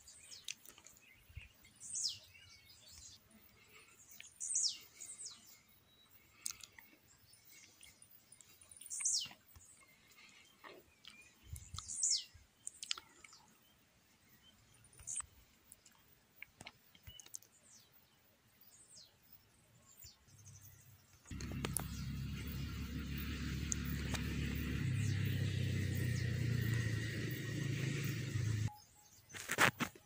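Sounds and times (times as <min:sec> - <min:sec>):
faint clicks: 0:21.2 - 0:22.6
loud low rumble: 0:21.3 - 0:28.7
birds whistling: 0:21.3 - 0:28.8.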